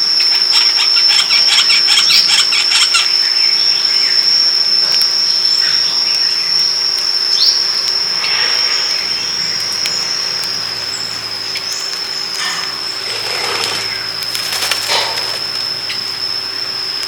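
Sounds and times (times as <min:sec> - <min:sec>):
high-pitched insect trill: 0:00.0 - 0:17.0
bird chirps: 0:05.2 - 0:16.6.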